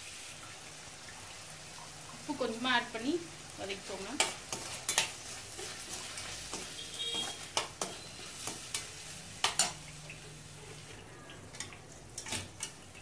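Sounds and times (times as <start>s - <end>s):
vegetables sizzling in oil: 0.0s - 13.0s
spatula scraping and clinking pan: 4.2s - 9.8s.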